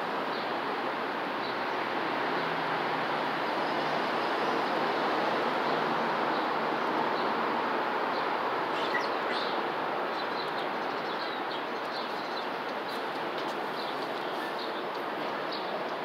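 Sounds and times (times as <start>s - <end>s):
small birds chirping: 8.1s - 16.0s.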